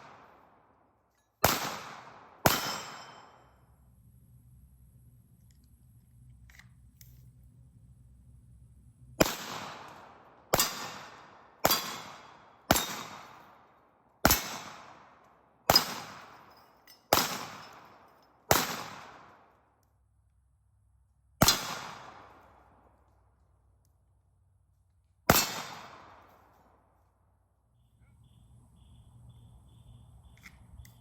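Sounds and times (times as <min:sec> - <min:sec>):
pistol shots: 0:01.4 - 0:03.5, 0:09.2 - 0:19.6, 0:21.4 - 0:22.8, 0:25.3 - 0:26.6.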